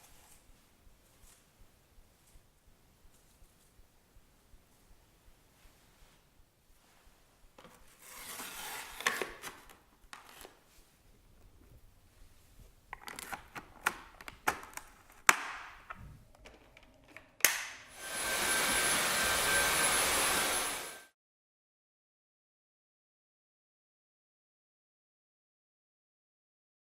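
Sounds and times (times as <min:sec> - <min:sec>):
plastic clicks and knocks: 0:12.9 - 0:17.8
vacuum cleaner whine: 0:16.0 - 0:21.2.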